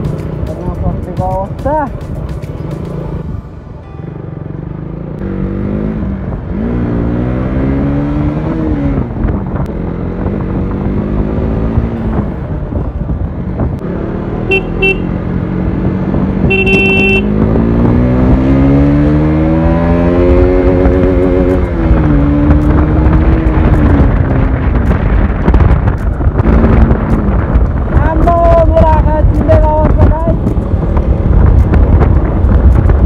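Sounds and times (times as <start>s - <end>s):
motorcycle engine running: 9.0s - 33.0s
vehicle horn toots: 14.5s - 15.1s, 16.4s - 17.4s.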